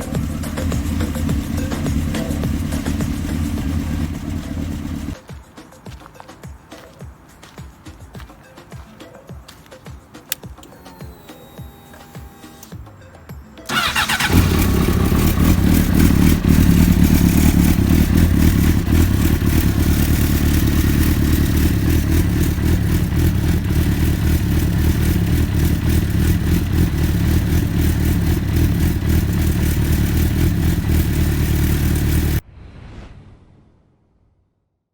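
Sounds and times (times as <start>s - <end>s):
motorcycle engine starting and running: 0.0s - 5.2s, 13.7s - 32.4s.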